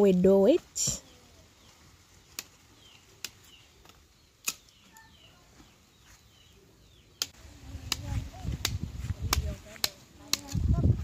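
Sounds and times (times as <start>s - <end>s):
faint bird chirps: 0.8s - 7.3s.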